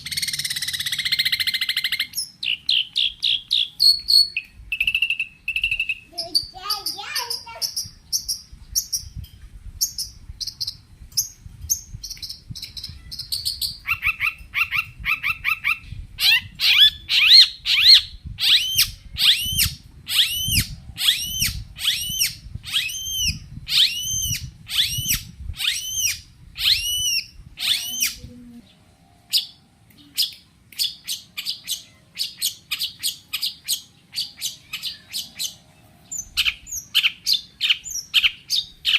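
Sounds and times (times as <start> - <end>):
bird whistled notes: 0.0 - 6.5, 11.7 - 28.2
bird singing high chirps: 0.0 - 38.9.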